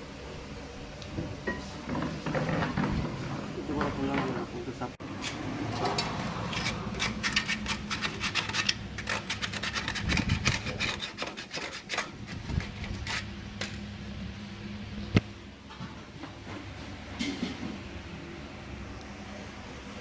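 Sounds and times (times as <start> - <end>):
steady low hum: 0.0 - 20.0
irregular scraping strokes: 5.3 - 13.3.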